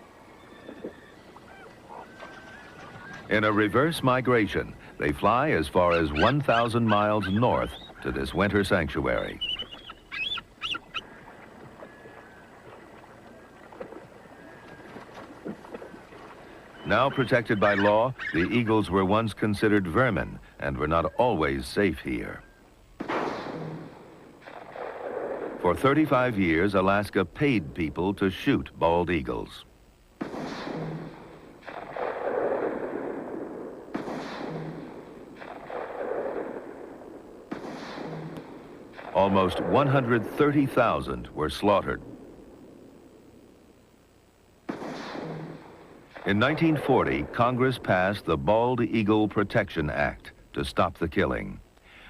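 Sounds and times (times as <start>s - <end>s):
river water: 0.0s - 19.2s
wind: 0.0s - 52.0s
eagle piping calls: 0.1s - 19.7s
gunshots echoing: 23.0s - 25.9s, 30.2s - 40.4s, 44.7s - 47.4s.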